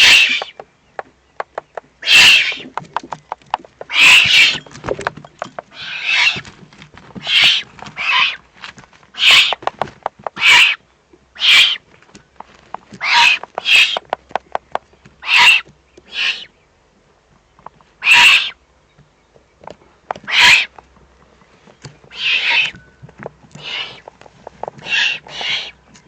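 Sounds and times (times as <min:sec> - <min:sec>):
owl chicks hissing begging calls: 0:00.0 - 0:00.5, 0:02.0 - 0:02.7, 0:03.9 - 0:04.6, 0:05.7 - 0:06.4, 0:07.2 - 0:08.4, 0:09.2 - 0:09.6, 0:10.4 - 0:10.8, 0:11.4 - 0:11.8, 0:13.0 - 0:14.1, 0:15.2 - 0:16.6, 0:18.0 - 0:18.6, 0:20.2 - 0:20.7, 0:22.1 - 0:22.8, 0:23.6 - 0:24.1, 0:24.8 - 0:25.8.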